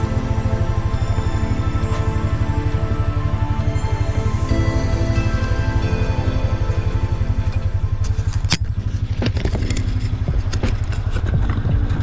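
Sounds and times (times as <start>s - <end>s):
background music: 0.0s - 9.1s
engine idling with rapid throb: 0.0s - 12.0s.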